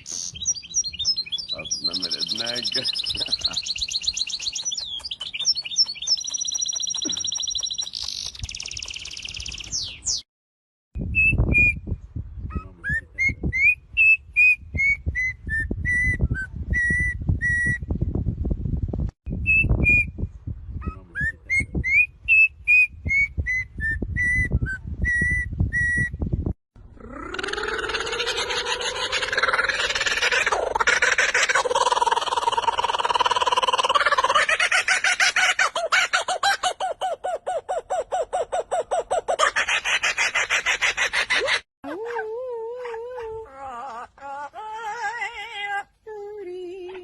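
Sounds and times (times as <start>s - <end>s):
songbird singing: 0.0s - 10.3s.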